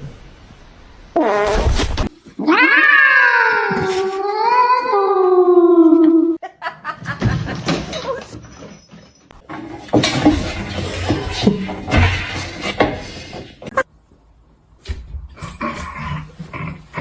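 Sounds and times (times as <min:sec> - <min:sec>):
cat yowling: 0:02.4 - 0:05.8.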